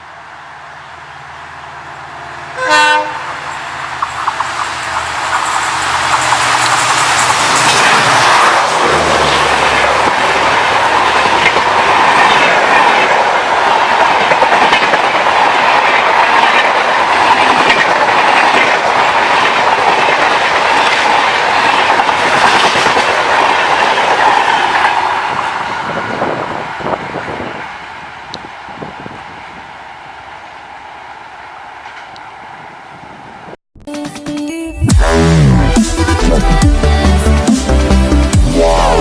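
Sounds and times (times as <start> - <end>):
train wheels clattering on rails: 3.0 - 33.6.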